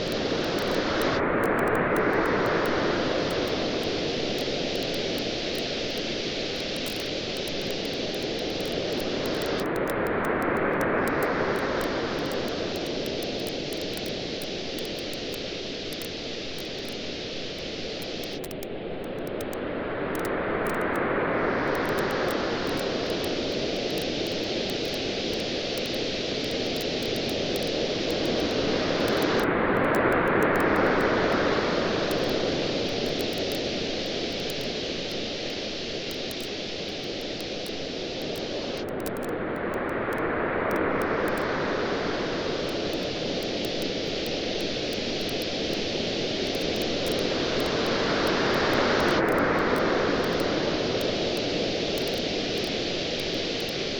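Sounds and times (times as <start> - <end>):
campfire crackling: 0.0 - 10.0, 10.8 - 19.6, 21.7 - 29.5, 30.3 - 39.2, 40.8 - 53.8
ocean waves washing in: 19.6 - 38.8, 39.6 - 53.9.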